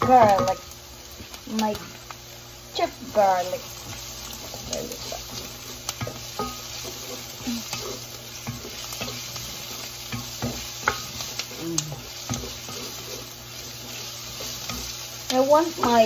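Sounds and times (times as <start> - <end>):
onion and garlic sizzling: 0.0 - 16.0
spatula scraping a pan: 3.8 - 16.0.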